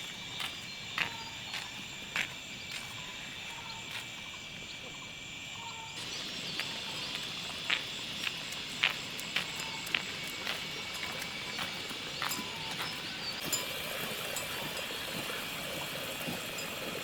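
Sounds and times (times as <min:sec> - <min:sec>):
light footsteps: 0:00.0 - 0:04.2, 0:06.0 - 0:16.6
background hiss: 0:00.0 - 0:17.0
insects droning: 0:00.0 - 0:17.0
bird chirps: 0:05.5 - 0:13.5.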